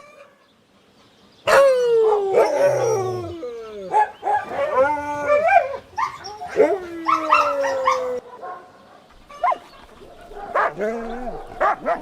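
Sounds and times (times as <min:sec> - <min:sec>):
dogs howling and whining: 0:01.5 - 0:08.2
dogs yelping: 0:01.5 - 0:08.6, 0:09.3 - 0:12.0.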